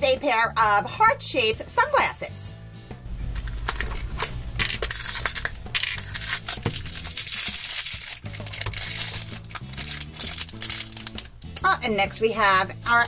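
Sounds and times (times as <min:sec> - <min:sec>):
plastic wrapping crinkling and tearing: 0:03.4 - 0:11.6.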